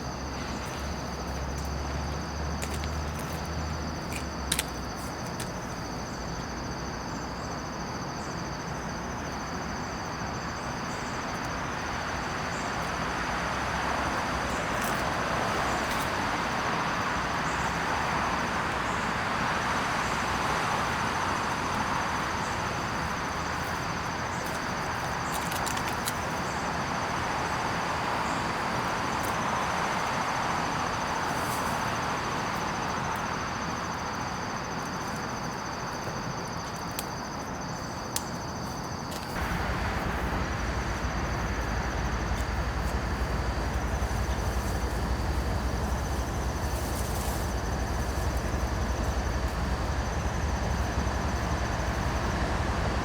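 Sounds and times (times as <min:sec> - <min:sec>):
constant background rumble: 0:00.0 - 0:53.0
insects trilling: 0:00.0 - 0:53.0
deep low rumble: 0:39.4 - 0:53.0.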